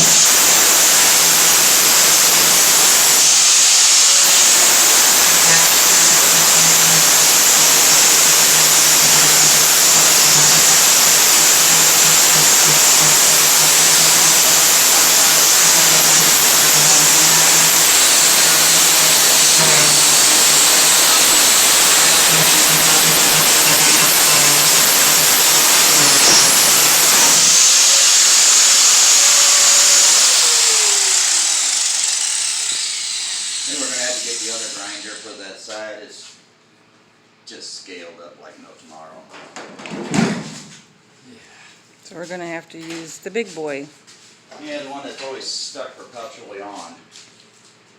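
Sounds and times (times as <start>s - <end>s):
angle grinder grinding metal: 0.0s - 35.4s
grinder winding down whine: 0.0s - 35.4s.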